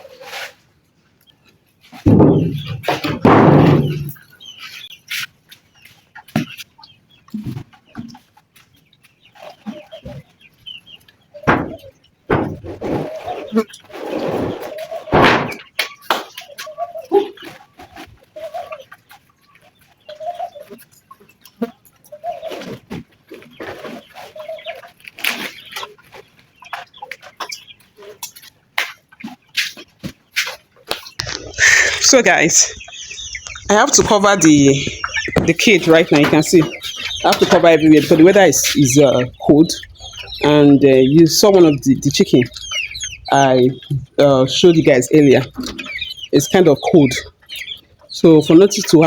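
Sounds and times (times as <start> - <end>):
chickens clucking: 0.0 - 49.0
knocks and bumps: 2.0 - 4.2, 11.4 - 13.0, 15.1 - 15.6, 31.2 - 38.2
short sharp noises: 31.2 - 35.5.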